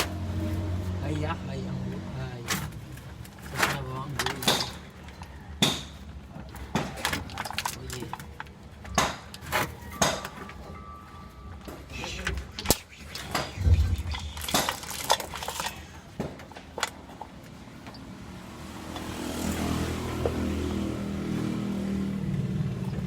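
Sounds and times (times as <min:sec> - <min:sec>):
sharp knocks and clanks: 0:02.5 - 0:08.1, 0:08.8 - 0:10.8, 0:11.6 - 0:17.9.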